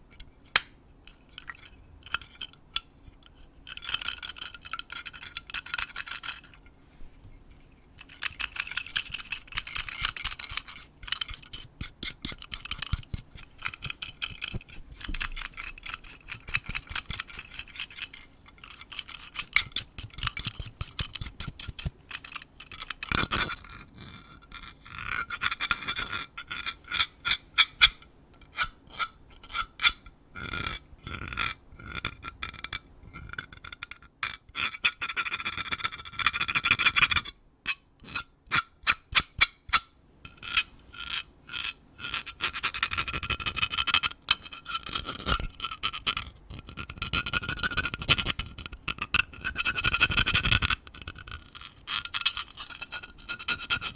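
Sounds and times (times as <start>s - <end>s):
crickets chirring: 0.0s - 53.9s
close brushing and scratching: 5.1s - 24.0s.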